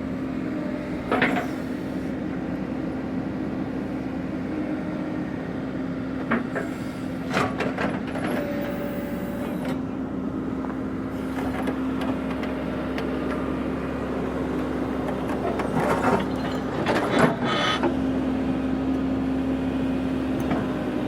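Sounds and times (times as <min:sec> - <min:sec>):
earth-moving machine engine running: 0:00.3 - 0:21.0
metal clanks and scraping: 0:15.1 - 0:18.0.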